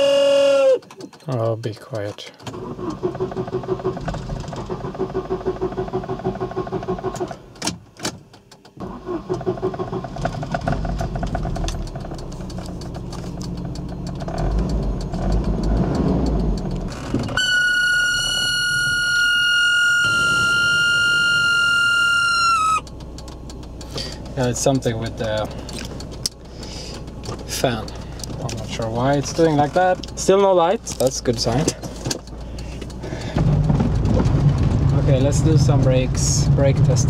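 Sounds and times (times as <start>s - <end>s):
car engine cranking: 0.0s - 37.0s
engine running: 8.8s - 37.0s
starter clicks: 22.0s - 36.1s.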